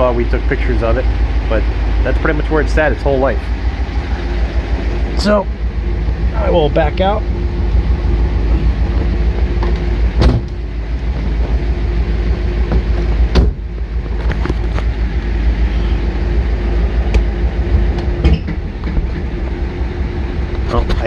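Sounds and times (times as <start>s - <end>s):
car engine rumbling: 0.0s - 21.0s
sharp clunks: 9.6s - 10.6s, 12.6s - 14.8s, 18.0s - 19.3s.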